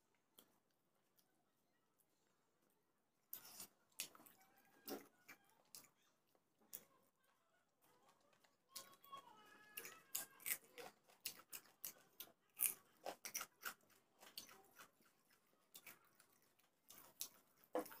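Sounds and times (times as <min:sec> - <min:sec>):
food crunching: 0:03.3 - 0:07.0, 0:07.7 - 0:18.0
wet chewing: 0:03.3 - 0:07.0, 0:07.8 - 0:18.0.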